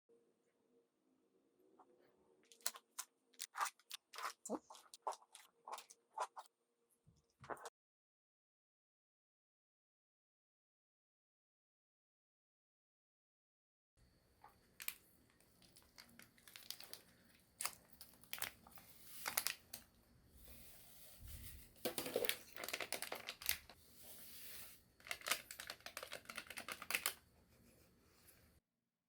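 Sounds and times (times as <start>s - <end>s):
packaging crinkling and tearing: 15.6s - 19.8s, 22.0s - 23.8s, 25.0s - 27.2s.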